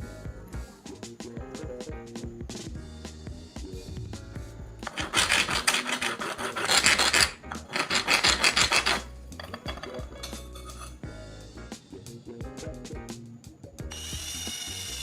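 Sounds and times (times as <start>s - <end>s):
knife being sharpened: 4.9s - 11.0s.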